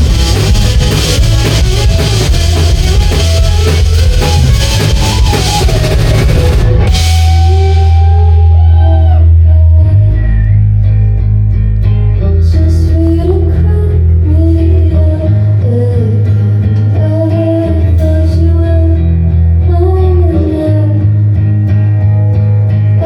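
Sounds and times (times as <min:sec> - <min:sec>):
drums and cymbals: 0:00.0 - 0:08.3
live rock band playing: 0:00.0 - 0:09.2
bending electric guitar line: 0:00.0 - 0:23.0.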